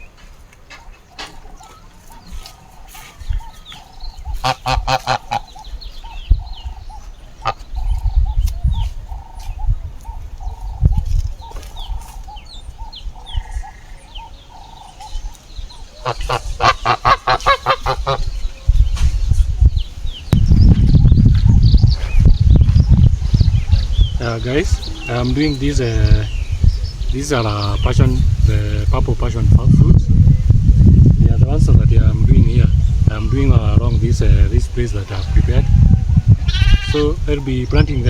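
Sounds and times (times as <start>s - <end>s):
small birds chirping faintly: 0.0s - 29.2s
geese honking: 0.7s - 8.0s, 11.5s - 18.4s.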